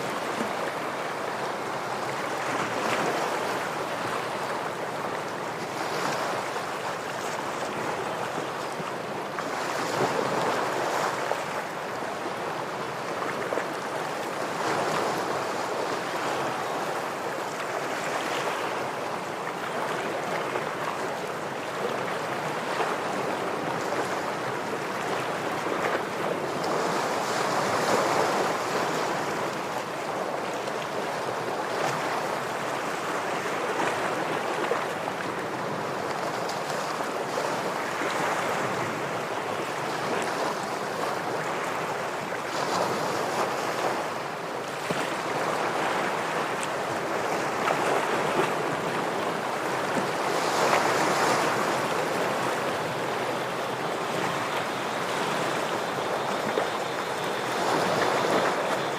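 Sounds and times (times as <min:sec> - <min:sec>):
ocean surf washing against rocks: 0:44.8 - 0:58.9.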